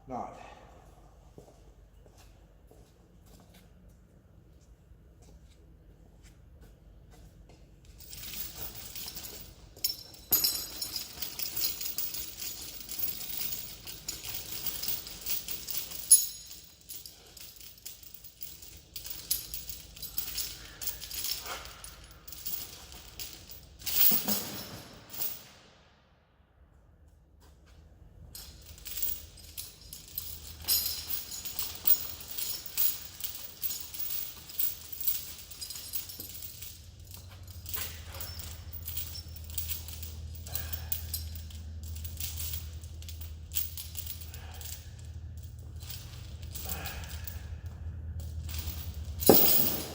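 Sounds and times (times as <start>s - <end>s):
steel chain rattling and clinking: 7.8s - 25.6s, 28.3s - 49.9s
chain clanks: 7.8s - 25.8s, 28.2s - 49.9s.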